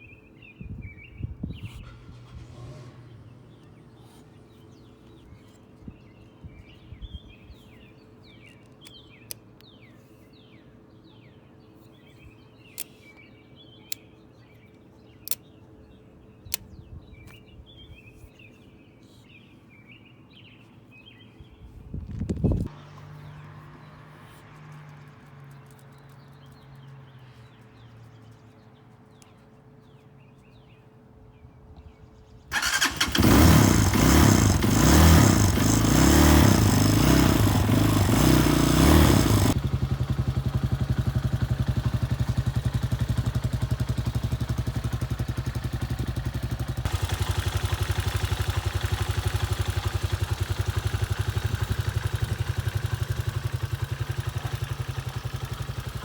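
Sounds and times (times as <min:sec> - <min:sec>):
dirt bike engine starting and idling: 0:01.8 - 0:04.1, 0:32.5 - 0:56.0.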